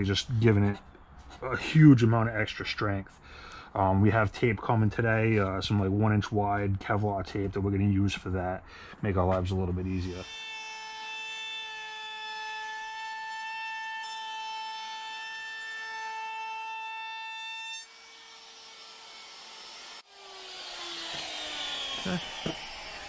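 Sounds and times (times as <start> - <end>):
router whining: 17.8 - 23.0
motor winding down: 19.3 - 23.0.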